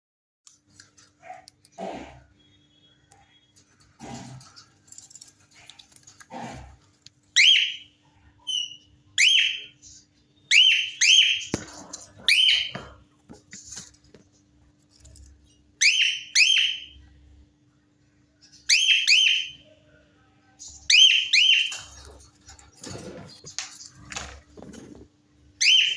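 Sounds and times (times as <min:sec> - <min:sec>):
cockatiel chirping: 0:07.4 - 0:07.8, 0:08.4 - 0:09.8, 0:10.5 - 0:11.6, 0:15.8 - 0:17.0, 0:18.5 - 0:19.6, 0:25.6 - 0:25.9.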